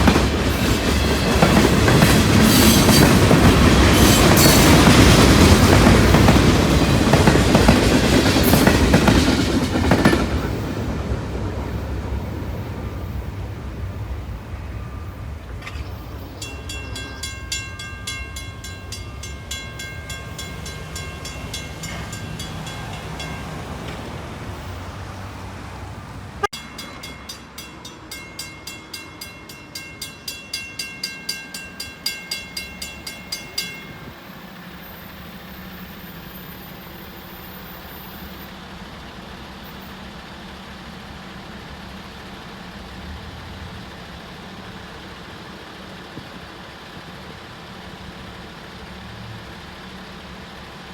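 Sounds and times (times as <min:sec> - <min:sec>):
freight train rumbling: 0:00.0 - 0:50.9
crossing bell ringing: 0:12.7 - 0:25.4, 0:26.4 - 0:34.8.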